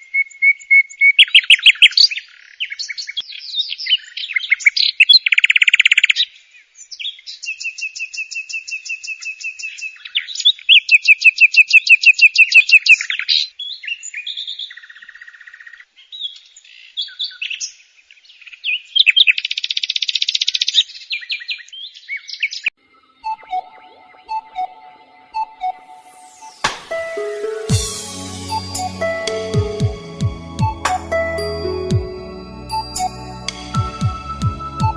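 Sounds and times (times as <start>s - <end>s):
small birds chirping and trilling: 12.4s - 23.6s.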